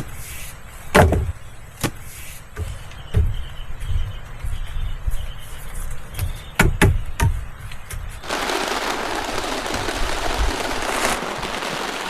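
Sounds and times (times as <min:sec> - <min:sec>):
heavy rain: 0:08.2 - 0:12.0.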